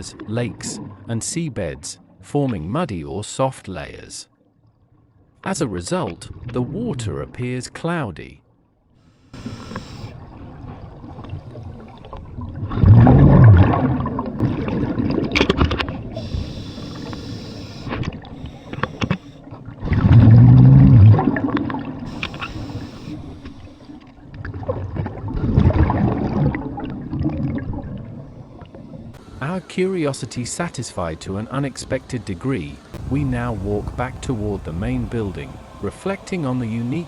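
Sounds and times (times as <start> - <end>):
regulator inhale hiss: 9.0 - 12.2, 16.0 - 19.7, 22.0 - 24.2, 28.1 - 30.0
regulator exhaust bubbling: 9.1 - 37.0.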